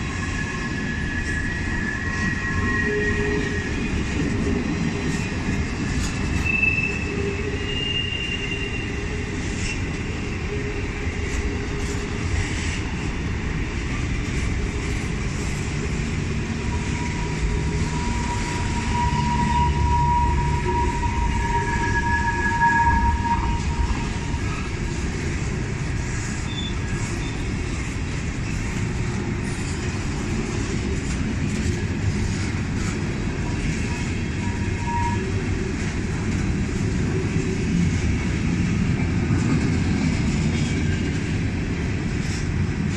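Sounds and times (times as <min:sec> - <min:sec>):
freight train cars rumbling: 0:00.0 - 0:42.9
wheel squeal: 0:06.3 - 0:09.9, 0:16.6 - 0:25.0, 0:26.4 - 0:27.5.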